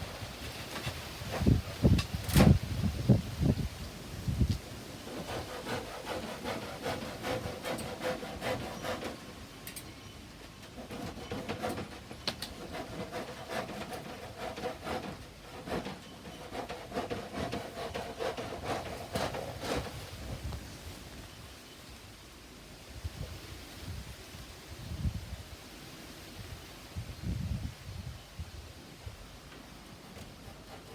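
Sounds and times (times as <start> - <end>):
hand saw cutting wood: 0.5 - 2.6, 5.0 - 9.4, 10.6 - 20.5, 30.0 - 30.9.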